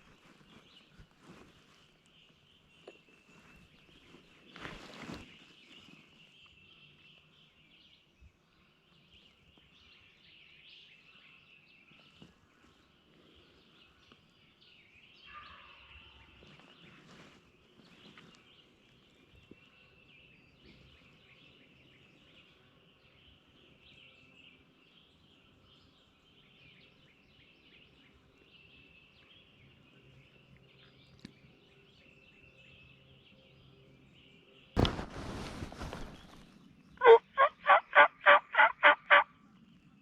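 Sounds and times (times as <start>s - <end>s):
faint songbird chirping: 0.0s - 40.0s
distant turkey gobble: 37.0s - 39.3s.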